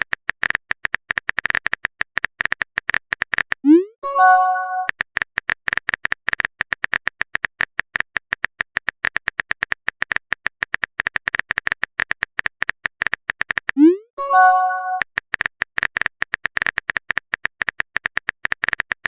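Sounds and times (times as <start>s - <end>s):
message chime: 3.8s - 4.9s, 13.8s - 15.0s
phone keyboard typing clicks: 4.2s - 19.0s.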